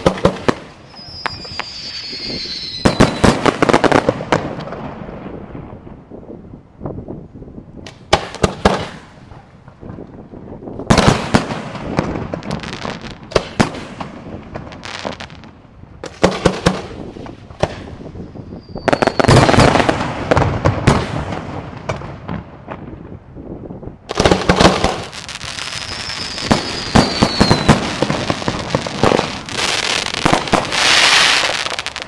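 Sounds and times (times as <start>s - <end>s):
faint firework whistle: 0.8s - 3.4s, 17.8s - 19.7s, 25.4s - 28.4s.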